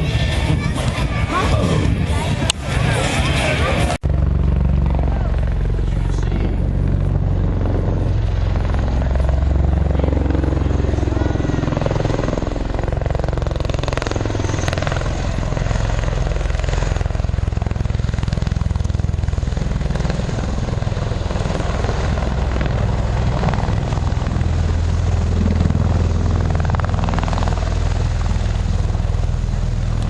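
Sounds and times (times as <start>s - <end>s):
aircraft propeller engine rumble: 0.0s - 30.0s.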